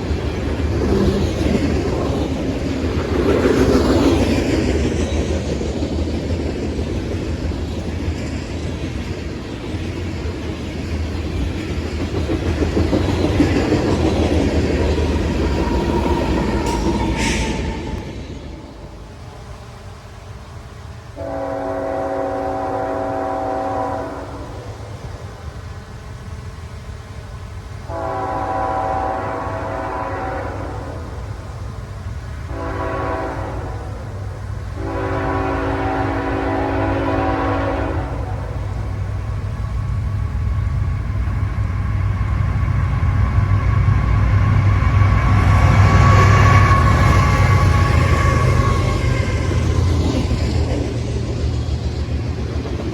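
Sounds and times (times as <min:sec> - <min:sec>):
passing train rumble: 0:00.0 - 0:52.9
locomotive air horn: 0:21.2 - 0:24.6, 0:27.9 - 0:31.1, 0:32.5 - 0:34.2, 0:34.8 - 0:38.6.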